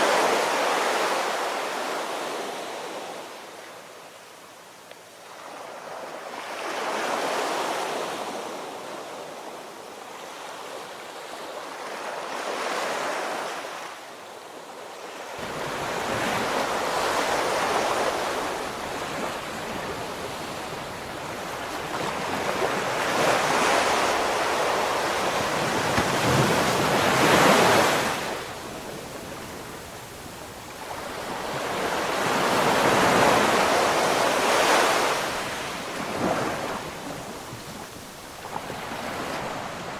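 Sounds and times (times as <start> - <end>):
ocean waves washing onto shore: 15.1 - 39.9.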